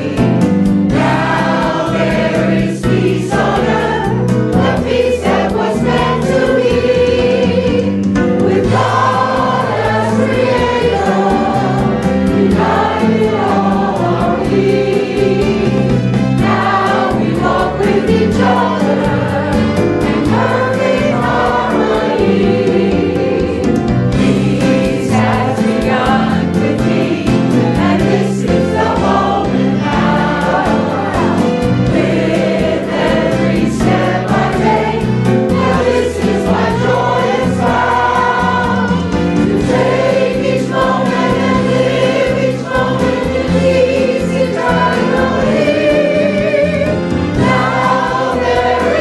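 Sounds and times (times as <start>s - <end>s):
choir singing a hymn: 0.0s - 49.0s
instrumental accompaniment: 0.0s - 49.0s.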